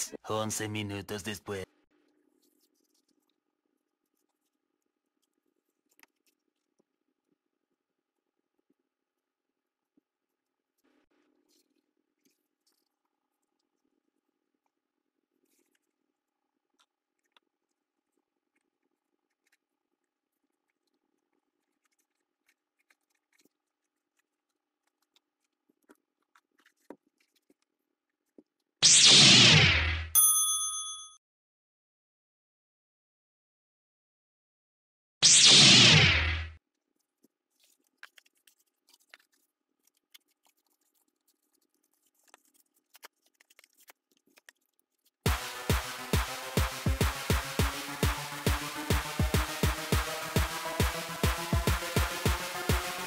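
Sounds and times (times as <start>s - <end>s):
glue stick rubbing cardboard: 36.7s - 45.2s.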